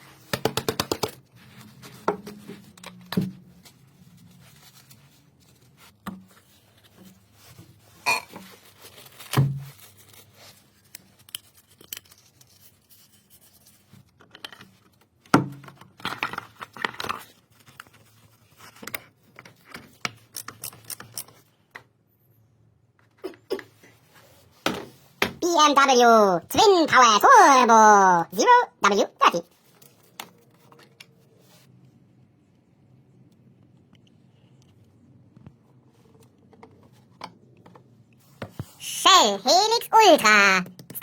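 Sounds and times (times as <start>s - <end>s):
tools and parts clicking and scraping: 11.1s - 12.5s, 19.3s - 21.6s.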